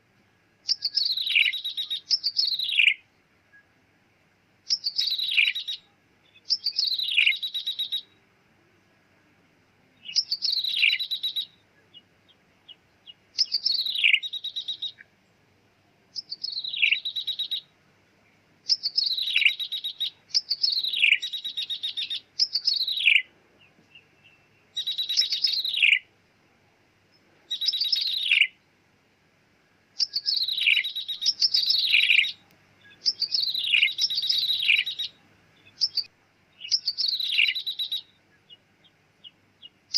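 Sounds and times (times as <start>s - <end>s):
bird calling with buzzy trill: 0.6s - 3.0s, 4.6s - 8.2s, 10.0s - 15.1s, 16.1s - 17.7s, 18.6s - 23.3s, 23.9s - 26.1s, 27.5s - 28.6s, 30.0s - 39.9s.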